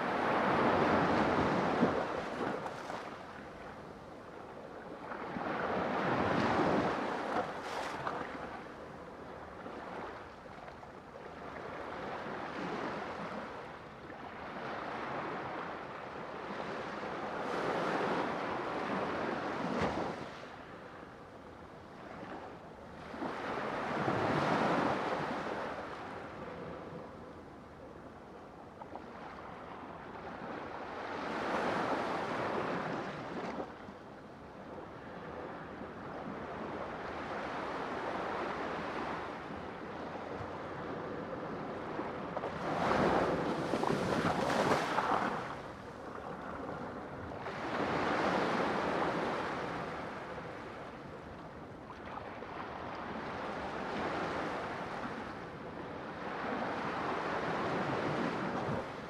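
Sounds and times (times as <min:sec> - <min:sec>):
sea waves breaking: 0:42.6 - 0:45.8.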